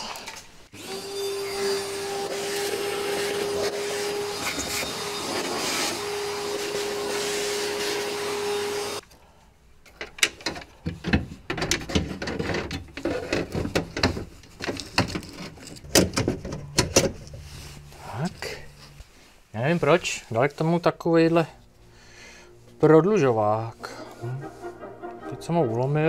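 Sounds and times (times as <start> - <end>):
vacuum cleaner running: 0.7 - 9.0
clicks and rattles of car door parts: 9.9 - 17.3.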